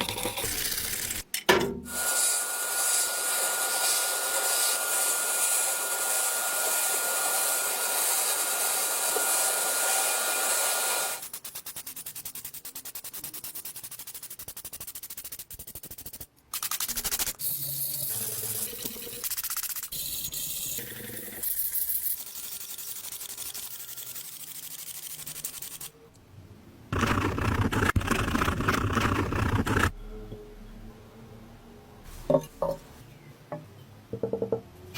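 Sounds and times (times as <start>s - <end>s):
power tool running: 2.0s - 11.2s
rubbing and handling sounds: 26.9s - 29.9s.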